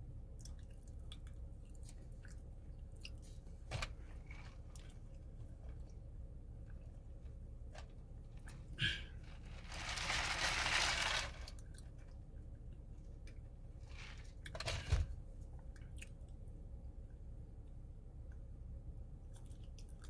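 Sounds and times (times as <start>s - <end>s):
chewing crunchy food: 0.4s - 3.4s, 19.3s - 20.0s.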